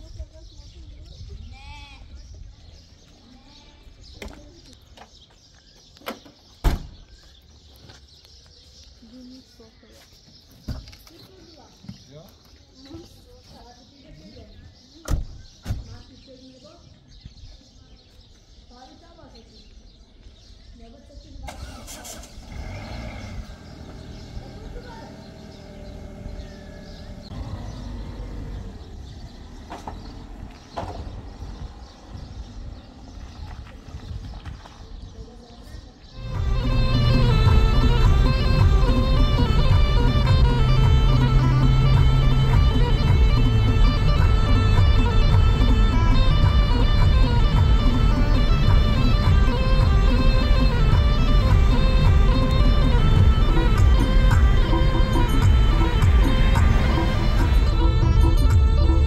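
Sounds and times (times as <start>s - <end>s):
loud thump: 6.6s - 7.0s, 30.8s - 31.2s
car engine running: 21.6s - 33.4s, 36.2s - 59.0s
faint bird chirping: 22.8s - 39.7s.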